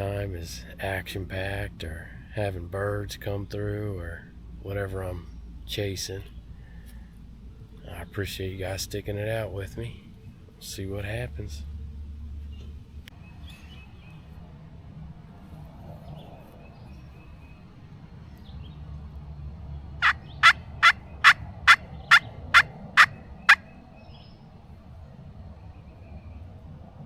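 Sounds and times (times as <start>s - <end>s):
turkey yelps: 20.0s - 23.7s.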